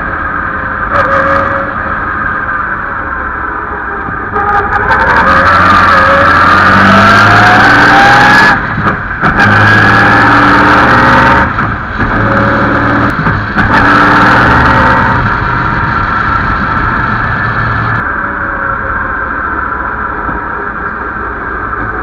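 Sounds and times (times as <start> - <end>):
racing car engine accelerating: 4.3 - 22.0.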